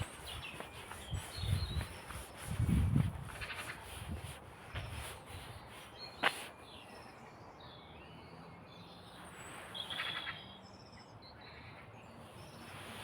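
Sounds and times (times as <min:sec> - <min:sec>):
small birds chirping faintly: 0:00.0 - 0:13.0.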